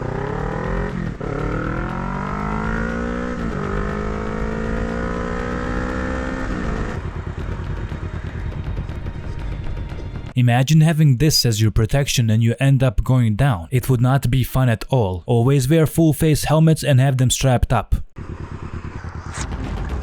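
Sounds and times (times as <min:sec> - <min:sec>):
motorcycle engine accelerating: 0:00.0 - 0:09.9, 0:18.2 - 0:20.0.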